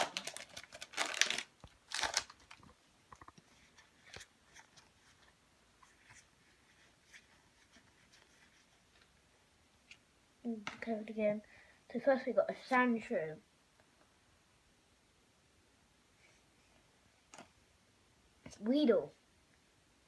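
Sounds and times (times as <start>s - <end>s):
foil wrapper crinkling: 0.0s - 2.7s.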